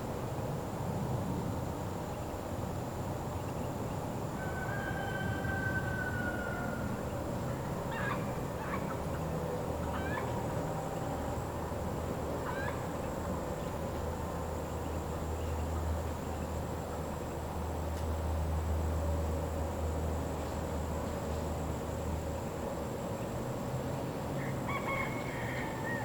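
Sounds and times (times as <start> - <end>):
rooster crowing: 4.4 - 7.1, 24.4 - 26.0.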